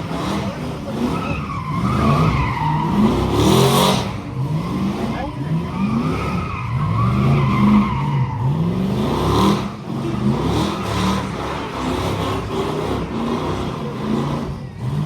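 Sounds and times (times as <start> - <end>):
tyres squealing: 0.0 - 8.7
truck engine revving: 0.0 - 15.0.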